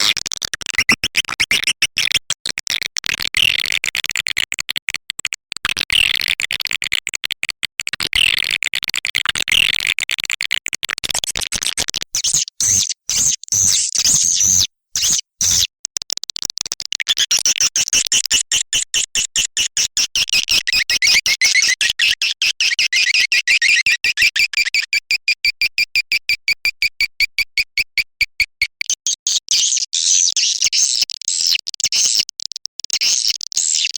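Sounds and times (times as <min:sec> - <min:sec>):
high chirping bird twitter: 0:12.2 - 0:15.6.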